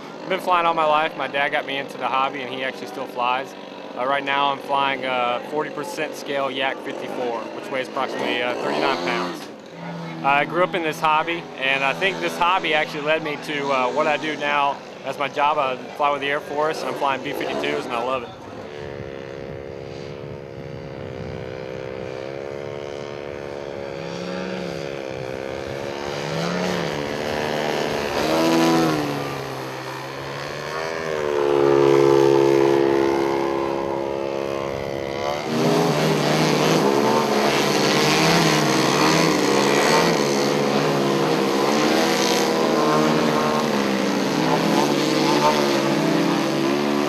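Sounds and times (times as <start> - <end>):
model airplane engine flying past: 0.0 - 6.2, 6.8 - 47.0
steady engine sound: 0.0 - 47.0.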